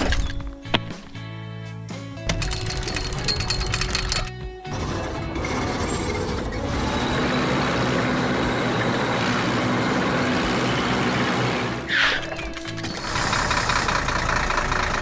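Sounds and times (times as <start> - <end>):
heavy vehicle engine running: 3.8 - 15.0.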